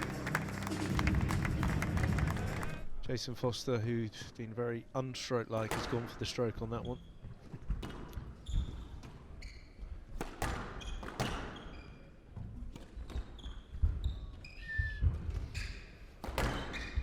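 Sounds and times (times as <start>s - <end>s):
shoes squeaking on court floor: 6.7s - 17.0s
squash ball hitting rackets and walls: 7.4s - 9.3s, 10.1s - 14.0s, 15.1s - 17.0s.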